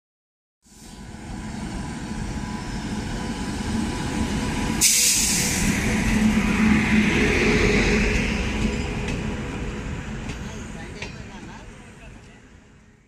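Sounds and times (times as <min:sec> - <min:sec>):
train passing at speed: 0:00.7 - 0:13.0
rush of air and wheel noise: 0:03.6 - 0:10.0.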